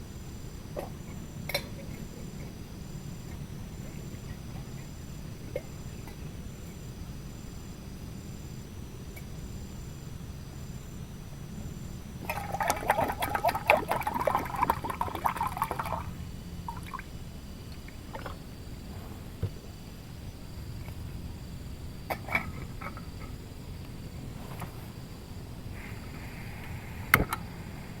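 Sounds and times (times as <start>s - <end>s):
low background rumble: 0.0s - 28.0s
liquid pouring or splashing: 12.2s - 17.2s.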